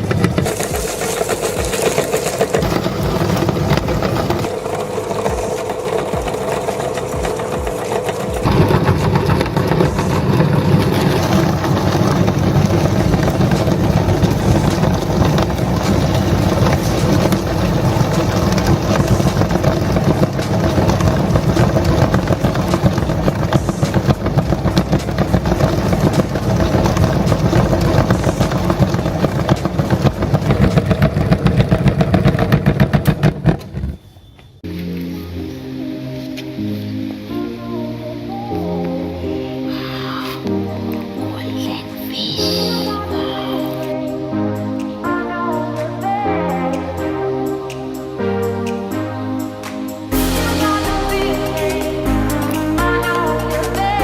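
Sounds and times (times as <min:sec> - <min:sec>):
meat grinder running: 0:00.0 - 0:33.9.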